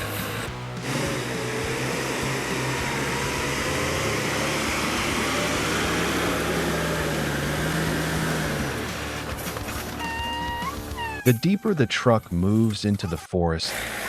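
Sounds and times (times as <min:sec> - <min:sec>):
loud rushing noise: 0:00.0 - 0:10.0
logging truck engine running: 0:00.0 - 0:11.3.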